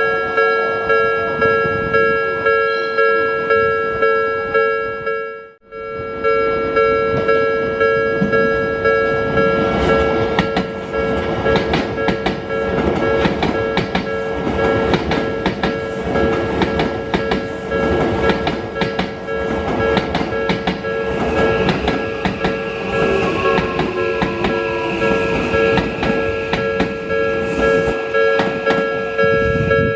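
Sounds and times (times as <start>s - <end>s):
level-crossing warning bells ringing: 0.0s - 29.9s
train wheels clicking over rail joints: 9.3s - 29.2s
train motor whine: 21.1s - 29.7s.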